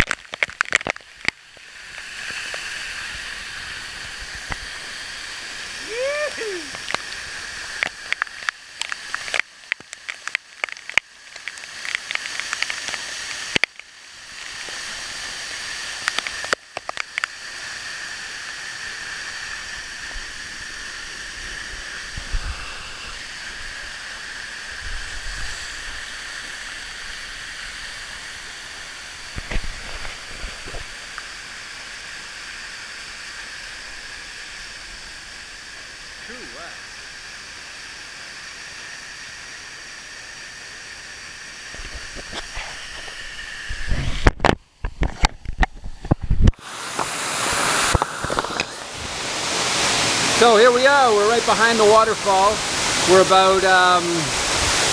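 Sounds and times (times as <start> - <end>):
waterfall rushing: 1.2 - 10.8, 46.6 - 54.9.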